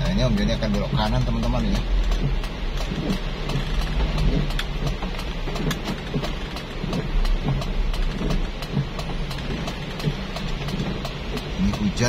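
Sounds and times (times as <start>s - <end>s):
car driving rumble: 0.0s - 12.0s
heavy rain on a car: 0.0s - 12.0s.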